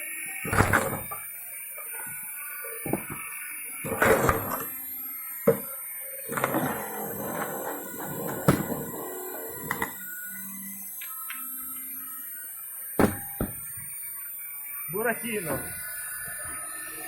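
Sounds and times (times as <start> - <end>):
wood splitting cracks: 13.0 - 13.9.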